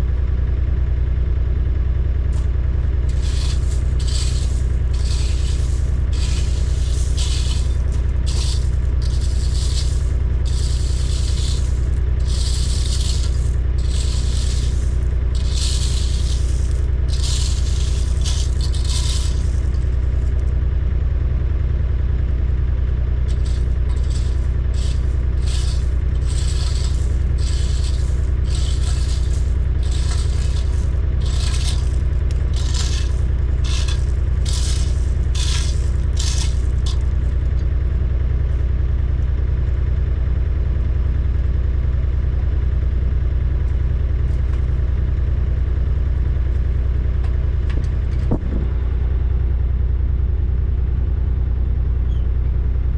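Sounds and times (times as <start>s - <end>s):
diesel engine running: 0.0s - 52.9s
short scraping rattling noises: 2.3s - 20.5s, 23.3s - 37.7s.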